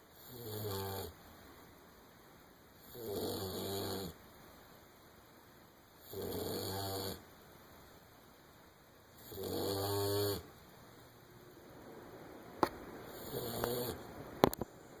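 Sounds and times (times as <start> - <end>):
puppy snoring: 0.1 - 1.2, 2.8 - 4.2, 6.0 - 7.3, 9.2 - 10.5, 13.0 - 14.1.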